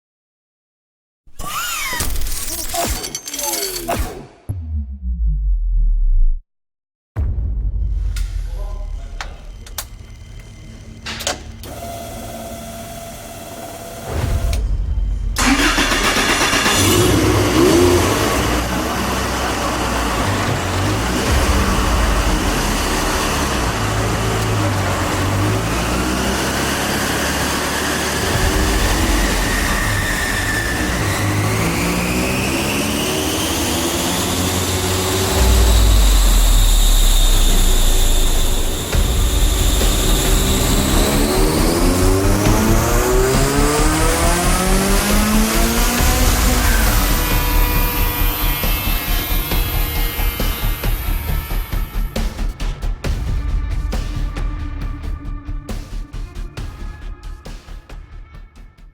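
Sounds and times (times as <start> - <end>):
car engine cranking and running: 8.9 - 52.2.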